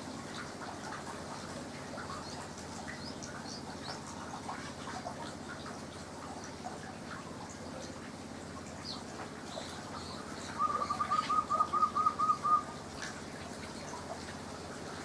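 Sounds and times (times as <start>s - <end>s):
faint bird chirps: 8.8s - 12.7s.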